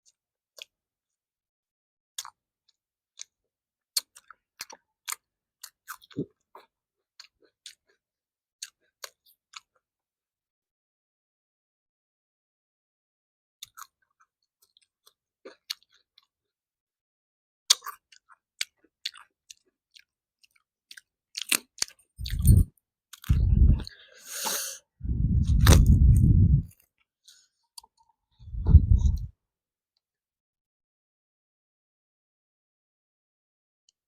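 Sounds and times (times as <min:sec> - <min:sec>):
chewing: 0:04.0 - 0:08.0, 0:13.6 - 0:16.3, 0:17.7 - 0:24.5
wet mouth clicks and smacks: 0:17.7 - 0:24.6, 0:25.3 - 0:26.6.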